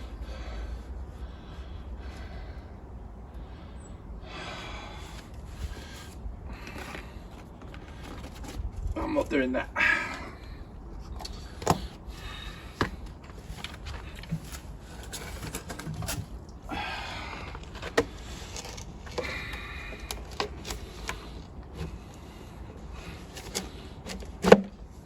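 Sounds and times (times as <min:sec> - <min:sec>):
plastic pipe scraping: 0:05.2 - 0:08.9, 0:11.0 - 0:16.6, 0:17.4 - 0:25.0
plastic pipe clicking and knocking: 0:23.4 - 0:24.8.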